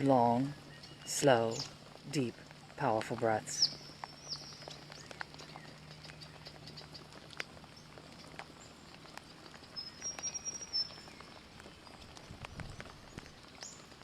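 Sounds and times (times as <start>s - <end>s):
light rain falling: 0.0s - 14.0s.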